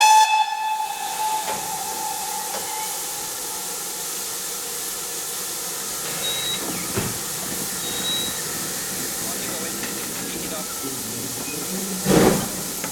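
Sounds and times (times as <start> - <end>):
steam whistle: 0.0 - 4.5
steam locomotive hissing: 0.0 - 12.9.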